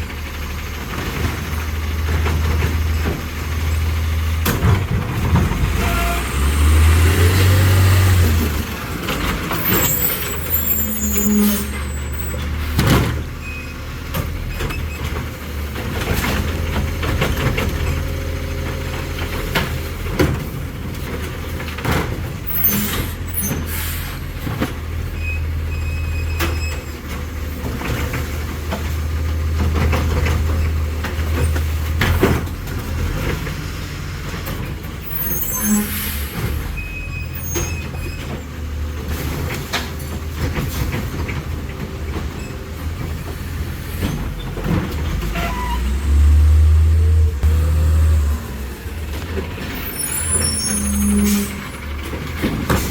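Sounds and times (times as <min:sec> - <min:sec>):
garbage truck engine running: 0:00.0 - 0:52.9
air brake hisses: 0:22.7 - 0:24.4, 0:35.5 - 0:36.5.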